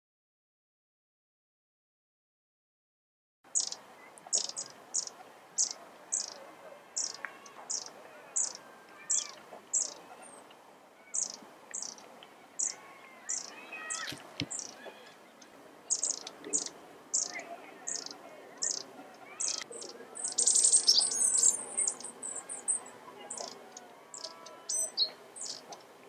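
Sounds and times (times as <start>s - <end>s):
faint bird calls: 3.5s - 26.0s
bird high thin falling call: 7.0s - 10.0s, 12.6s - 15.2s.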